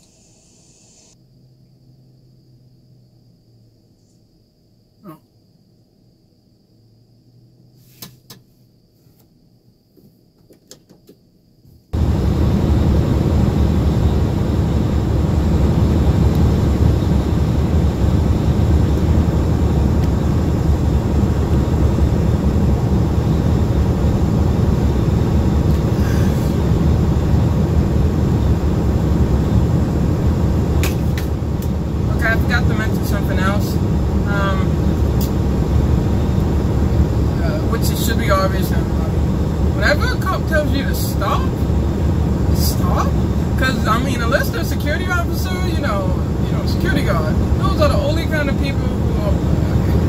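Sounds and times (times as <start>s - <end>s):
vehicle road and engine noise: 6.8s - 8.7s, 12.0s - 50.0s.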